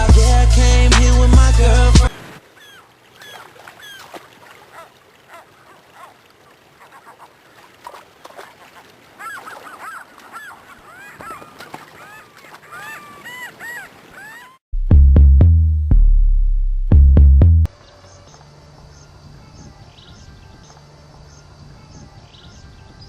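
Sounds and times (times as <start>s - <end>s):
flock of birds calling: 2.4s - 6.1s, 9.2s - 14.6s.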